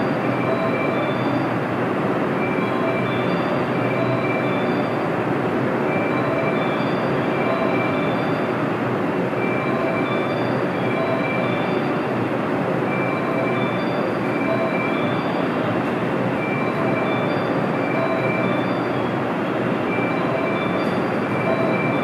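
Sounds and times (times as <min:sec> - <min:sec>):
freight train rumbling: 0:00.0 - 0:22.0
high wheel squeals: 0:02.4 - 0:05.1, 0:05.9 - 0:08.6, 0:09.4 - 0:12.1, 0:13.0 - 0:15.7, 0:16.4 - 0:22.0.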